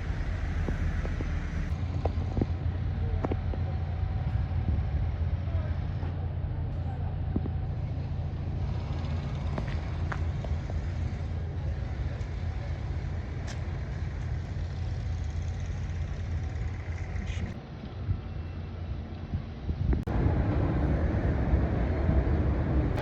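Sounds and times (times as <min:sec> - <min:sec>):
vehicle rumble: 0:00.0 - 0:23.0.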